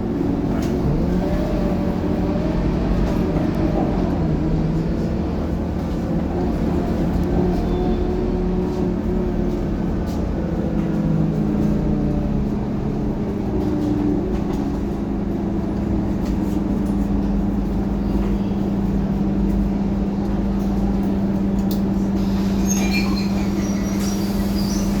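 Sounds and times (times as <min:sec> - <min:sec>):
bus diesel engine droning: 0:00.0 - 0:25.0.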